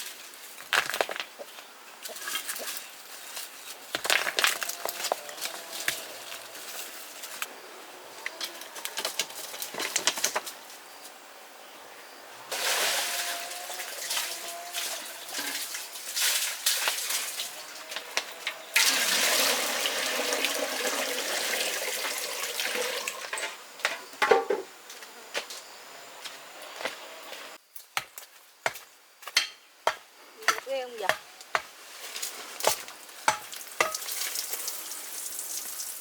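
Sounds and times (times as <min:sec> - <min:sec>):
water gushing: 0:12.5 - 0:17.8, 0:18.8 - 0:23.3, 0:33.7 - 0:36.0.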